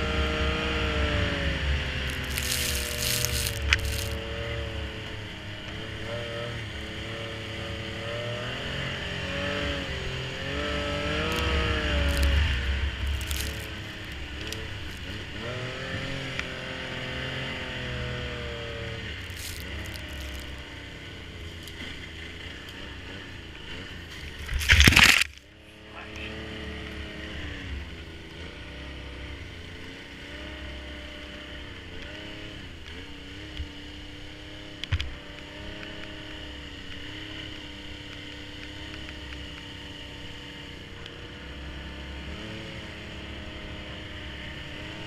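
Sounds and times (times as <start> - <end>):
snowmobile engine revving: 0.0 - 33.6.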